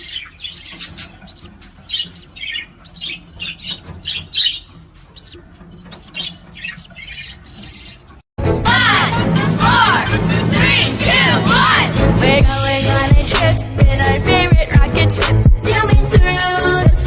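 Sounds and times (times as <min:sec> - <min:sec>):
parrot squawking: 0:00.0 - 0:08.1
loud music: 0:08.4 - 0:17.0.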